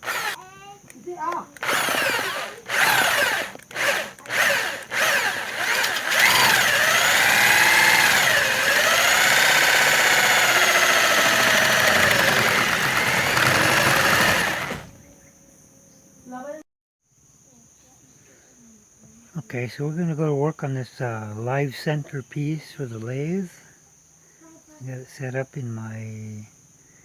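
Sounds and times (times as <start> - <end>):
electric drill motor: 0.0 - 0.4, 1.3 - 15.0.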